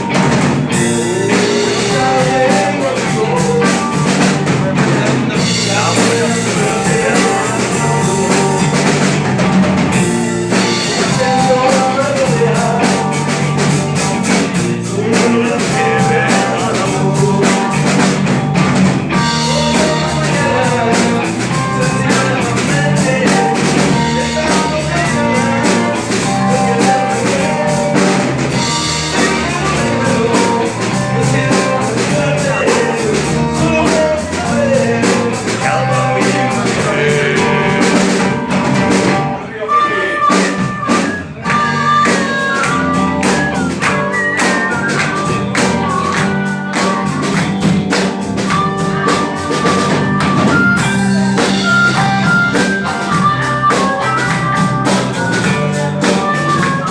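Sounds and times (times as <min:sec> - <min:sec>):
drum kit groove: 0:00.0 - 0:39.5, 0:40.2 - 0:56.9
electric guitar: 0:00.0 - 0:56.9
harmonica lead line: 0:00.0 - 0:56.9.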